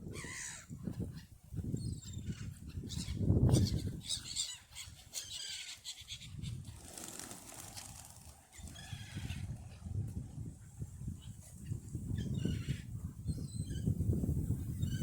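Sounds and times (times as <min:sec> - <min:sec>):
waterbirds calling: 0:01.9 - 0:06.8.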